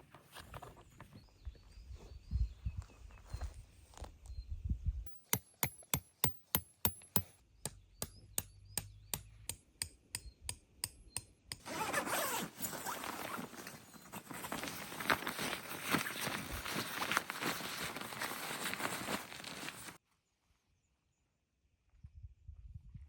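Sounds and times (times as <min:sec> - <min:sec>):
hammer strikes: 0:05.1 - 0:11.3
loud rustling: 0:11.6 - 0:20.0.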